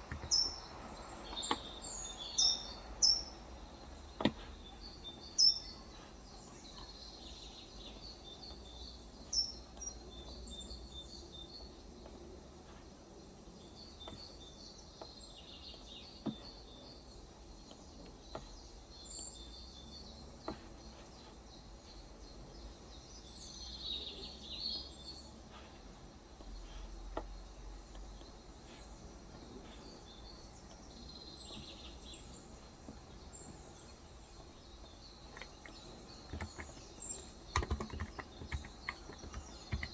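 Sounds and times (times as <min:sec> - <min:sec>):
small birds chirping: 0:00.0 - 0:39.9
sharp clicks: 0:35.2 - 0:39.9.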